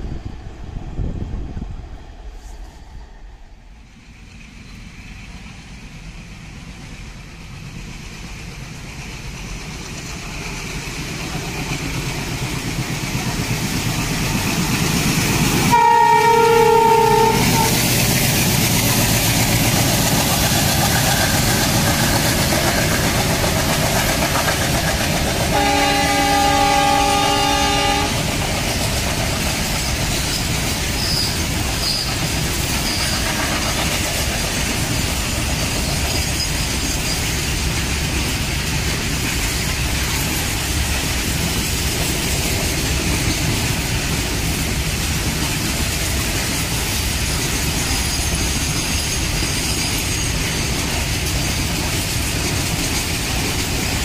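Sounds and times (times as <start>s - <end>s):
diesel locomotives: 0.0s - 54.0s
train horn: 15.6s - 17.9s, 25.5s - 28.3s.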